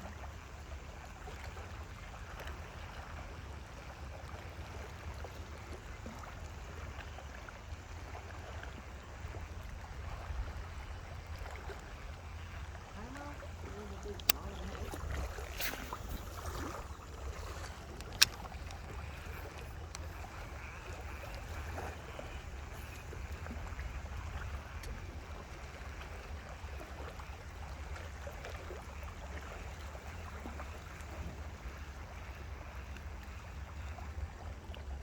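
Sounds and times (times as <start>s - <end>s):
water washing: 11.7s - 24.9s.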